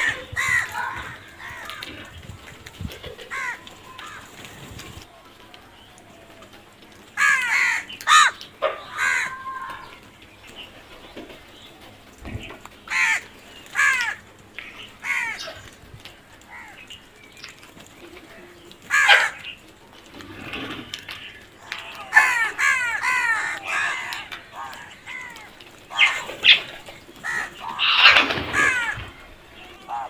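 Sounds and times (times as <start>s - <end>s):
crows cawing: 0.0s - 2.2s, 3.2s - 4.6s, 6.3s - 10.0s, 12.8s - 17.0s, 18.8s - 19.7s, 20.6s - 30.0s.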